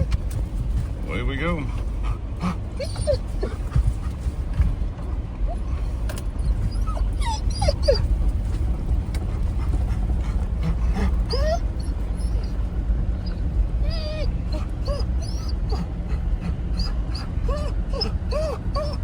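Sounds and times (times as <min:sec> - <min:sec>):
truck rumbling: 0:00.0 - 0:19.0
dog whining: 0:02.1 - 0:04.1, 0:05.5 - 0:08.2, 0:10.6 - 0:19.0.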